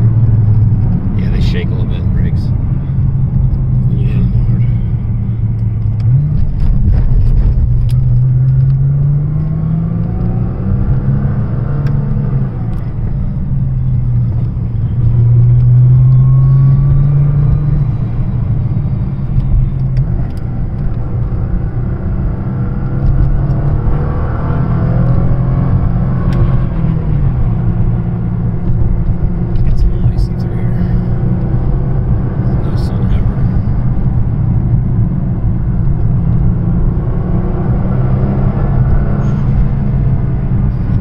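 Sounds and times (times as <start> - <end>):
car engine accelerating: 0.0 - 41.0
steady road noise: 0.0 - 41.0.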